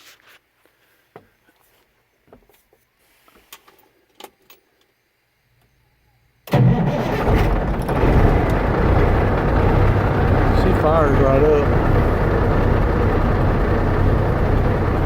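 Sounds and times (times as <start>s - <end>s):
diesel truck engine starting and running: 6.5s - 15.0s.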